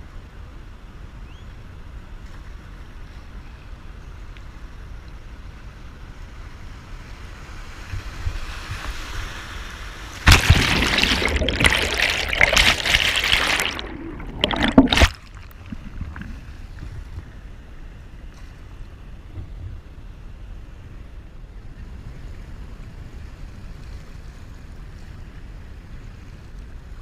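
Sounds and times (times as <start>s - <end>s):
wind rumble on microphone: 0.0s - 10.3s, 13.8s - 27.0s
water splashing around kayak: 10.0s - 17.6s.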